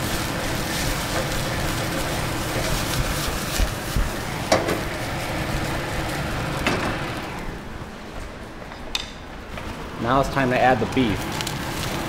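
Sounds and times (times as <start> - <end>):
wooden spoon scraping a pan: 0.0 - 6.6
rice and onions sizzling in wok: 0.0 - 7.6, 11.1 - 12.0.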